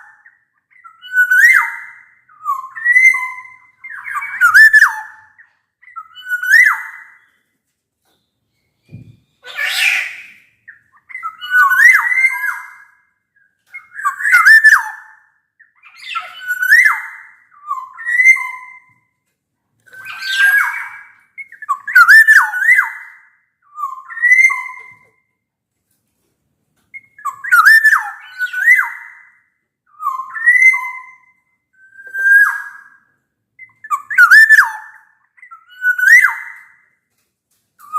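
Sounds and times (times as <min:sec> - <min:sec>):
bird singing fluty whistled phrases: 0:00.0 - 0:07.5, 0:08.2 - 0:18.9, 0:19.9 - 0:25.3, 0:26.9 - 0:37.0
bird harsh rasping call: 0:09.4 - 0:10.5.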